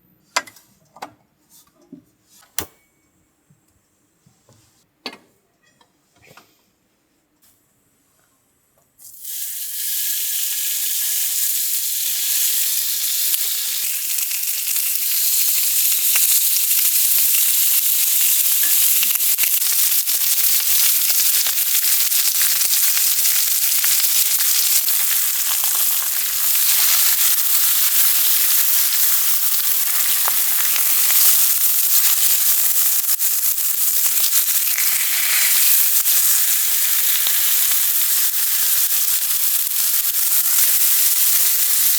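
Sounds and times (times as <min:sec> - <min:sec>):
food sizzling in a pan: 0:09.0 - 0:41.9.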